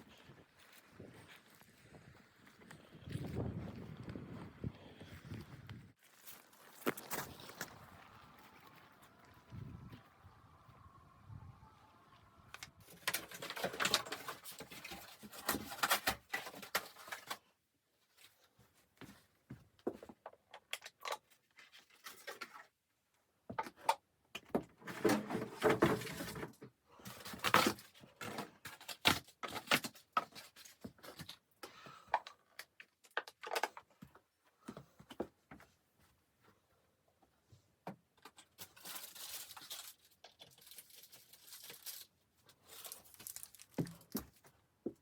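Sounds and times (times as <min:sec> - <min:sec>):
crackling and rustling handling: 0:00.0 - 0:10.9, 0:12.5 - 0:45.0.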